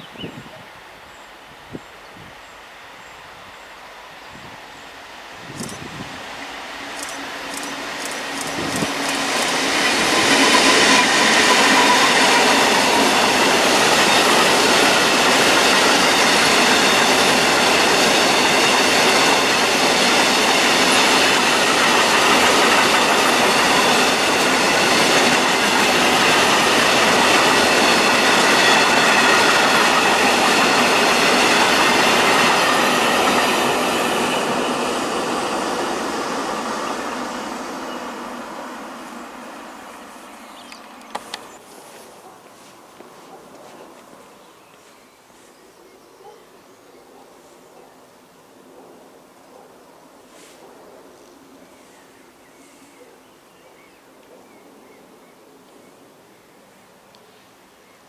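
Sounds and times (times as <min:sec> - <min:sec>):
high ringing of wheels and rails: 0:04.7 - 0:41.6
train wheels rumbling on rails: 0:05.1 - 0:44.4.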